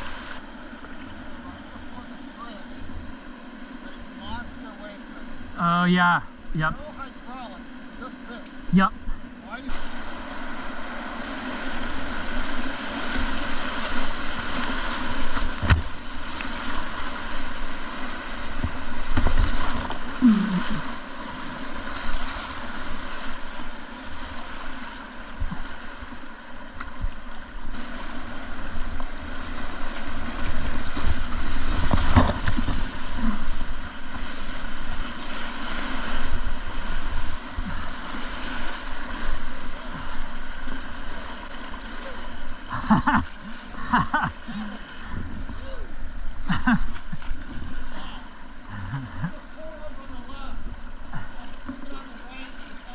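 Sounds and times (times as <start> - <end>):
whitewater rushing and splashing: 0.0 - 52.9
kayak thumps: 12.4 - 17.5, 18.4 - 20.2, 29.0 - 35.2.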